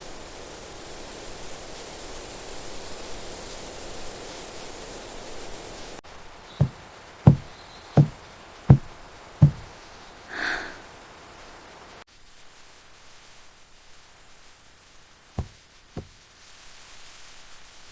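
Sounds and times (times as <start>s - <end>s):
outdoor ambience hiss: 0.0s - 17.9s
dull knocks: 6.6s - 9.8s, 15.4s - 16.2s.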